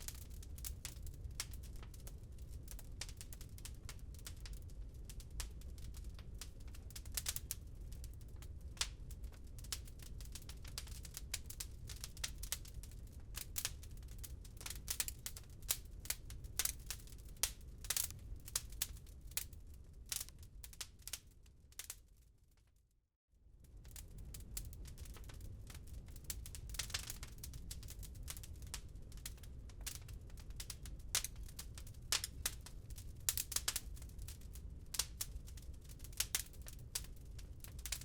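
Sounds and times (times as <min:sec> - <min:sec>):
wood fire crackling: 0:00.0 - 0:22.7, 0:23.6 - 0:38.0.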